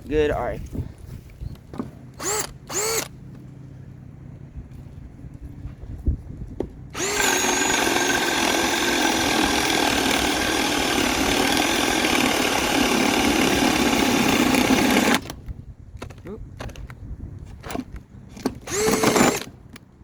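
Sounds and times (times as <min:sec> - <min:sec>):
cordless drill boring through wood: 0:02.2 - 0:03.1, 0:07.0 - 0:15.4, 0:18.6 - 0:19.5.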